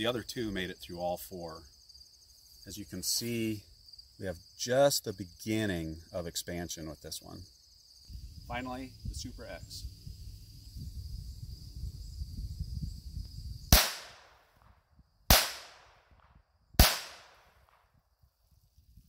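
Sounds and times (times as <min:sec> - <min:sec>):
pistol shots with echo: 0:13.7 - 0:14.5, 0:15.3 - 0:16.2, 0:16.8 - 0:17.8.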